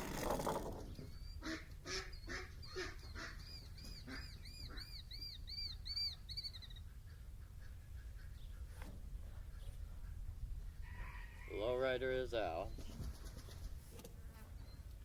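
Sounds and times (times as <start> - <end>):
bird whistling: 3.4 - 6.8.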